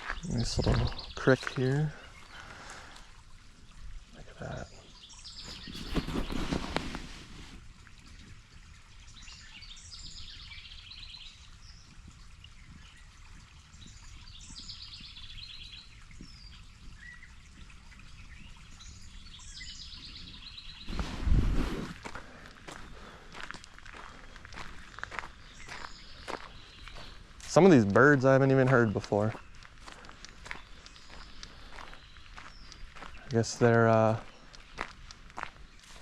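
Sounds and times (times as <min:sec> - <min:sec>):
creek trickling: 0:00.0 - 0:36.0
songbird song with trill: 0:04.4 - 0:06.6, 0:08.7 - 0:21.1, 0:24.5 - 0:36.0.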